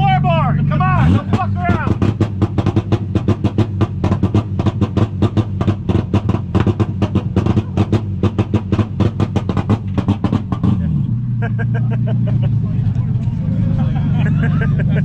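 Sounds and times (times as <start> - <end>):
exhaust crackles and pops: 0.7 - 10.9.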